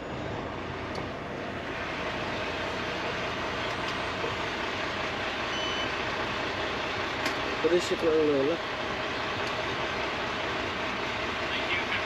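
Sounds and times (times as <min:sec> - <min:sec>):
truck engine running: 0:00.0 - 0:12.0
high electronic beep: 0:05.5 - 0:05.9.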